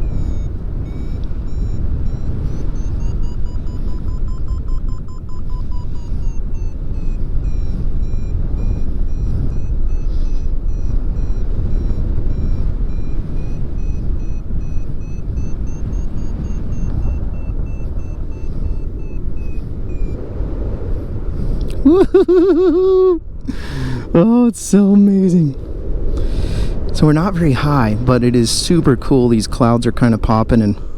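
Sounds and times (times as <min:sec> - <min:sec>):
variometer beeping: 0:00.0 - 0:20.8
wind rushing over microphone: 0:00.0 - 0:30.9.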